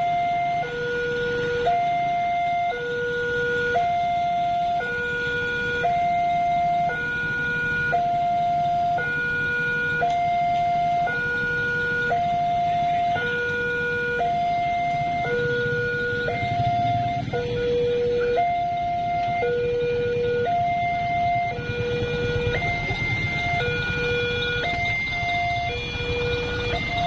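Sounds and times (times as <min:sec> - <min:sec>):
two-tone hi-lo siren: 0:00.0 - 0:27.0.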